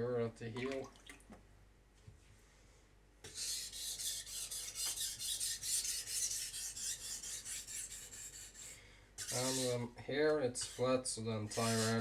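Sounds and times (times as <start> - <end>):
knife scraping on whetstone: 3.3 - 9.8, 10.6 - 12.0.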